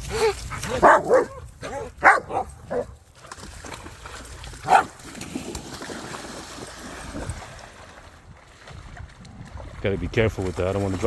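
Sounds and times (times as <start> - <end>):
dog barking: 0.7 - 3.0, 4.7 - 4.9.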